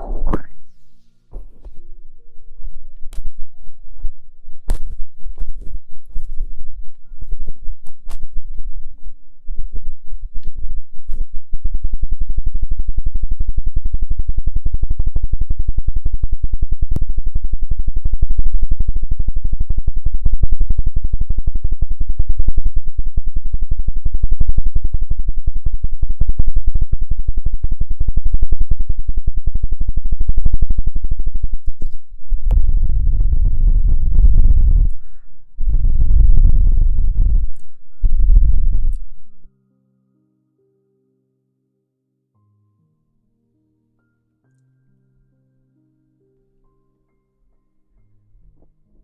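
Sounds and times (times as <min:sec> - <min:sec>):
low chopping rotor pulse: 0:00.0 - 0:01.6, 0:09.5 - 0:39.5.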